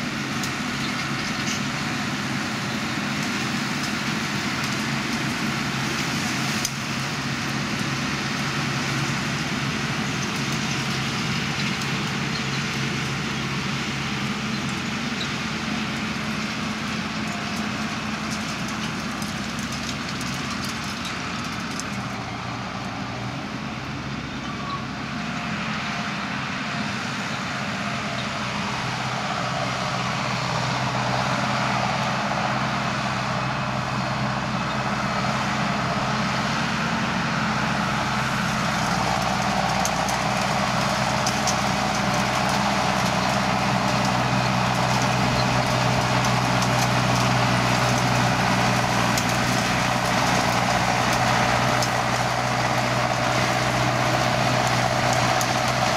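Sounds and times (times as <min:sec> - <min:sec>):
diesel tractor engine running: 0:00.0 - 0:55.9.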